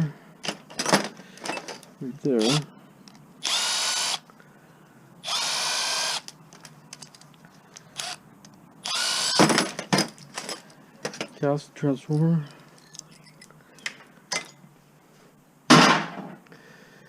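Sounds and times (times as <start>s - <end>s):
power drill whining: 2.4s - 2.7s, 3.4s - 4.2s, 5.2s - 6.3s, 8.0s - 8.2s, 8.8s - 9.5s.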